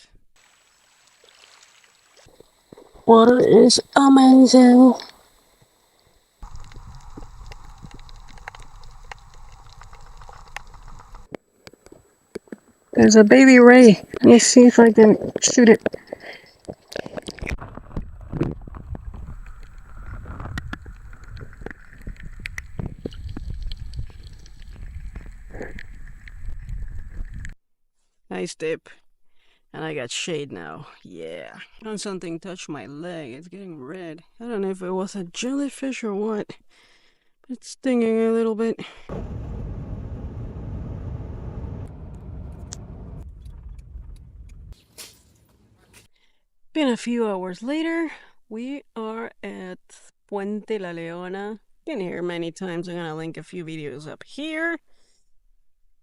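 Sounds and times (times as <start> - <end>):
water sloshing and splashing: 0.4 - 3.1
water clicks and gurgles: 0.4 - 3.7, 6.4 - 12.0, 15.2 - 27.6
low rumble: 39.1 - 45.9.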